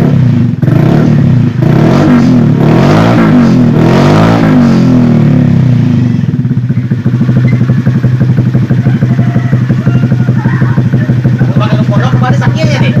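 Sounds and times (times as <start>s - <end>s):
scooter engine idling: 0.0s - 1.7s, 4.6s - 13.0s.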